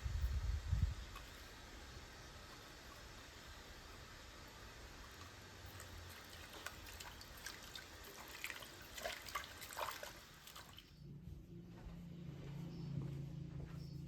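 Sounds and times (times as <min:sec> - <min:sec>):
water dripping: 0:04.9 - 0:10.9.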